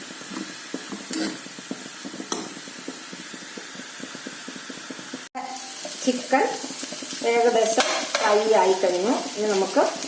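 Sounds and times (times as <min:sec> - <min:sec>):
chicken sizzling in oil: 0:00.0 - 0:10.0
spoon knocking pan: 0:00.4 - 0:03.3, 0:05.8 - 0:08.9.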